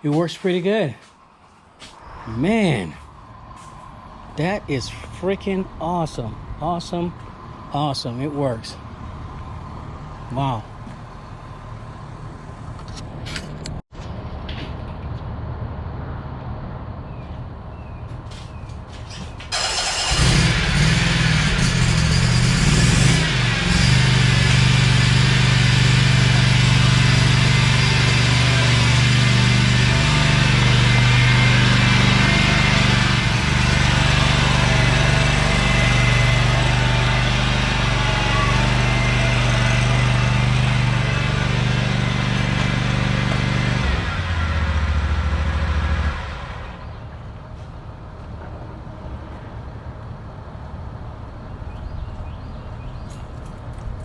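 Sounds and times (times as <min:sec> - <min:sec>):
pressure washer motor humming: 0:19.6 - 0:44.6.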